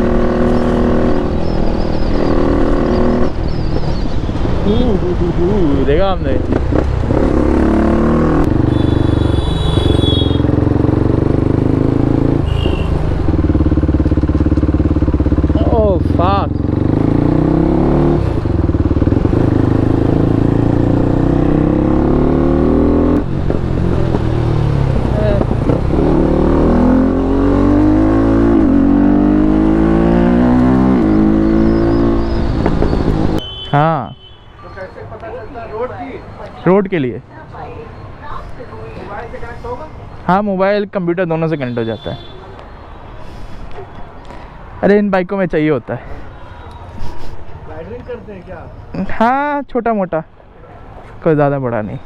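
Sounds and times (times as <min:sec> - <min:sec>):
motorcycle engine accelerating: 0:00.0 - 0:03.6, 0:04.7 - 0:33.4
motorcycle engine running: 0:08.4 - 0:22.2.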